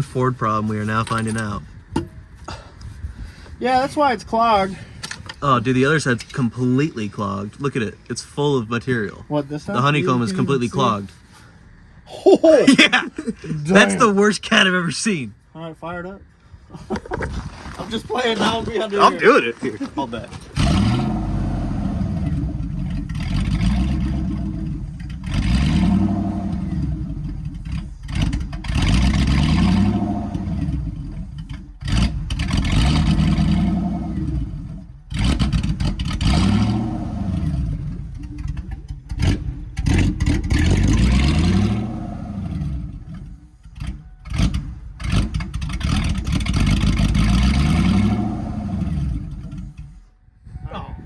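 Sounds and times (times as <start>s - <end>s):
loud car engine revving: 20.4s - 49.9s.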